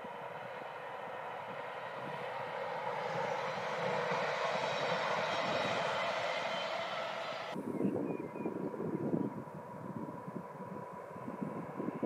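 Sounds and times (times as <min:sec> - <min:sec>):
electric train rushing past: 0:00.0 - 0:07.6
train motors humming: 0:00.0 - 0:07.6.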